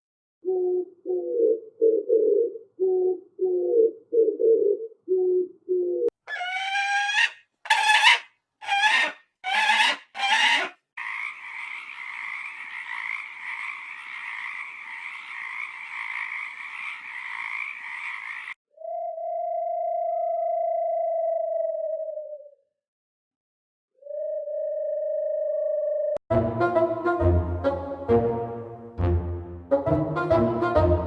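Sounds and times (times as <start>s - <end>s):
animal calls: 6.2s - 18.6s.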